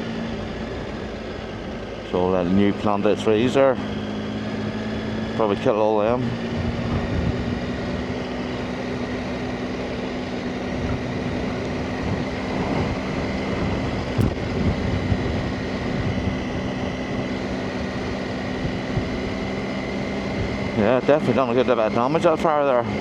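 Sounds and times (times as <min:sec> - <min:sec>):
motorcycle engine running: 0:00.0 - 0:23.0
wind noise on microphone: 0:06.5 - 0:08.1, 0:10.8 - 0:17.4, 0:18.0 - 0:19.5.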